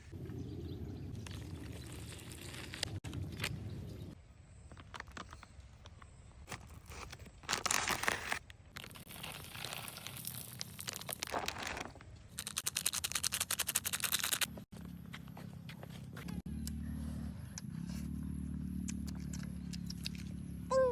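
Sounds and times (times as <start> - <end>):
crinkling handling noises: 4.6 - 14.5.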